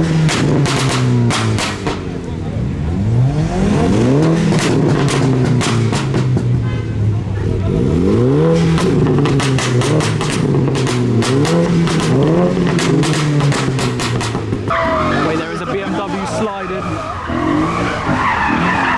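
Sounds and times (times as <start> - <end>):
car engine revving: 0.0 - 18.9
sharp exhaust cracks: 7.9 - 18.9.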